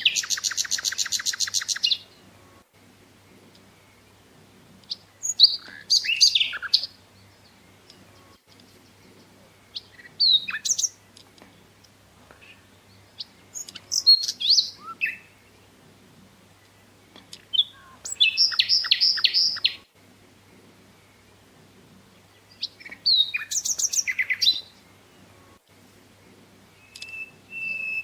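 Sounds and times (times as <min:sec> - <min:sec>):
songbird chirping and whistling: 0:00.0 - 0:02.2, 0:04.8 - 0:11.7, 0:12.3 - 0:15.7, 0:16.5 - 0:19.9, 0:22.1 - 0:25.5, 0:26.7 - 0:28.0.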